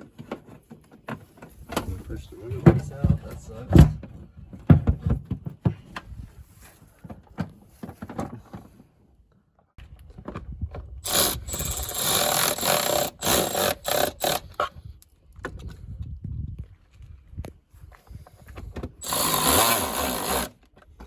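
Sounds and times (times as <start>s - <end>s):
cordless power tool running: 11.0s - 14.6s, 19.0s - 20.6s
parts knocking and scraping: 11.0s - 14.7s, 18.5s - 21.0s.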